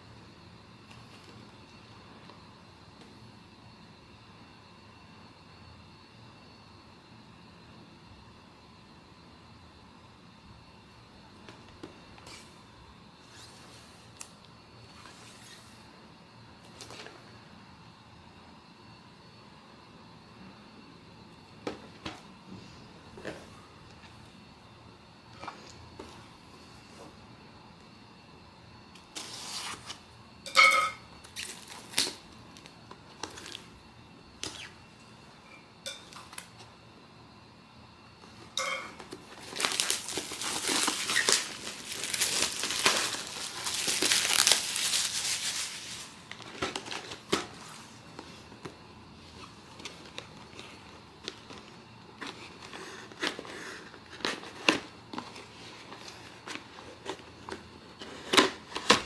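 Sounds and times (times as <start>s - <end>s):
wrapper crinkling: 31.3s - 33.6s, 39.0s - 47.3s.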